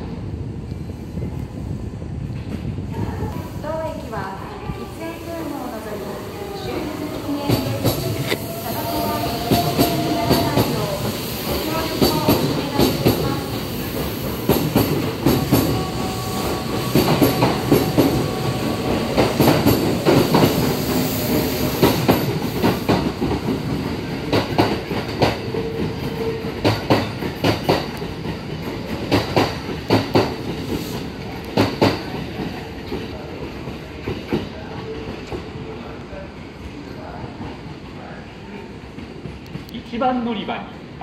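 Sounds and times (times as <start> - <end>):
steady train whine: 0.0 - 40.0
train wheels clacking over rail joints: 7.5 - 33.1.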